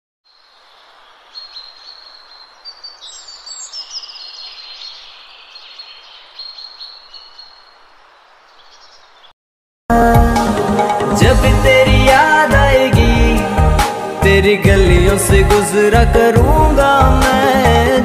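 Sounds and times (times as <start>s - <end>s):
steady outdoor hiss: 0.3s - 9.3s, 10.4s - 18.0s
small birds chirping and trilling: 0.3s - 9.4s.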